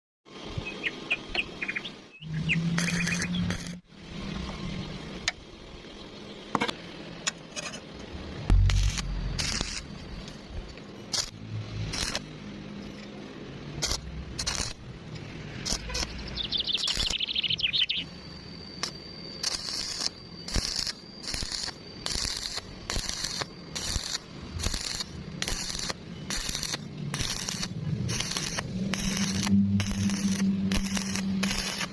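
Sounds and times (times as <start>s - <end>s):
faint high whine: 0.3s - 31.9s
small birds chirping: 0.6s - 3.6s, 16.0s - 18.2s
low hum with crackling: 2.4s - 31.9s.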